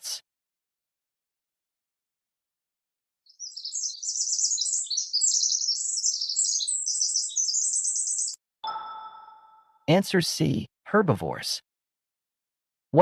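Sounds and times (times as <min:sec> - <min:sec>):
birds chirping and trilling: 0:03.2 - 0:08.4.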